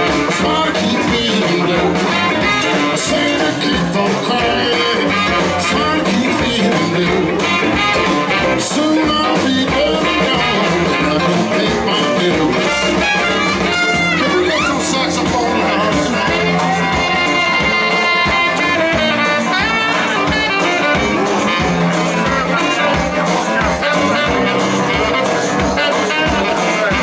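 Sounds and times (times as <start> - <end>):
electric guitar: 0.0 - 27.0
live blues band playing: 0.0 - 27.0.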